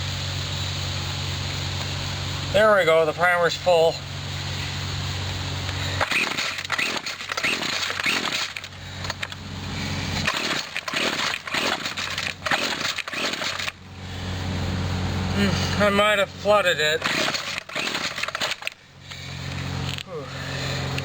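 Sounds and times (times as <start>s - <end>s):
trimmer engine turning over: 3.7s - 21.0s
recoil starter rope pulled: 5.7s - 13.8s, 15.3s - 21.0s.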